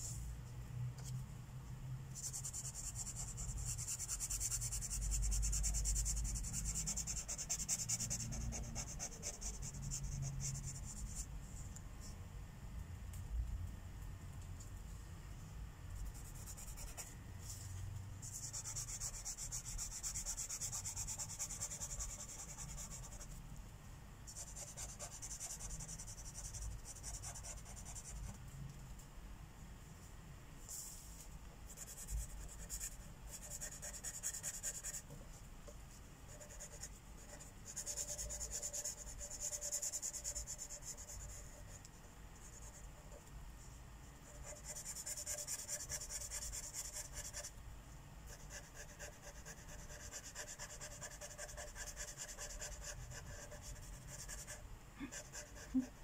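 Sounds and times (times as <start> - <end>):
marker rubbing on paper: 36.3 - 41.7, 48.3 - 55.9.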